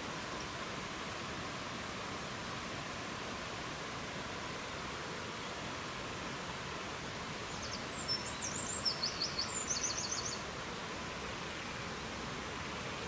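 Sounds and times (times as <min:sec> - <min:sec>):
songbird trilling: 0:07.7 - 0:10.4.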